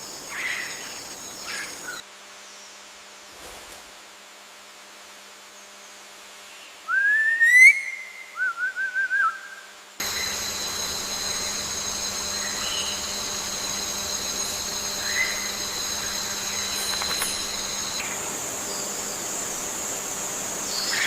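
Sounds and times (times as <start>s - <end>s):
bird whistling call: 6.9s - 10.4s
high-pitched forest drone: 10.0s - 21.0s.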